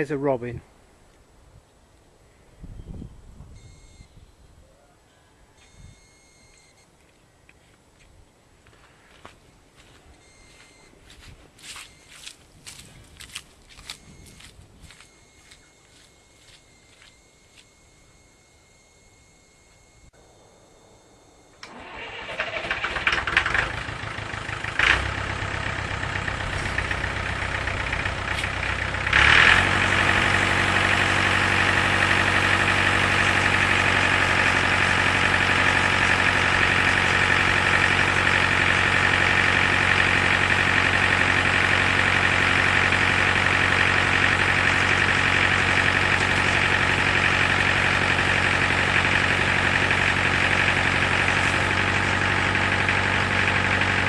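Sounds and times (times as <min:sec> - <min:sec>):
tractor engine starting and running: 0:21.4 - 0:54.0.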